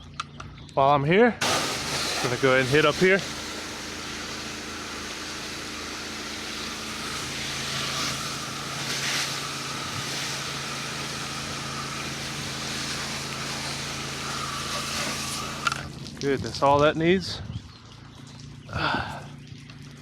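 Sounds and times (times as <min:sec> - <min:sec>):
water spray hissing: 0:01.4 - 0:16.3
pressure washer engine hum: 0:01.4 - 0:16.4.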